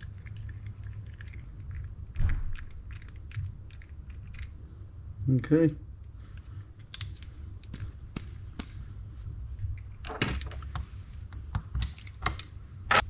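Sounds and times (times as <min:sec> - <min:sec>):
small metal parts clicking: 0:11.8 - 0:12.6.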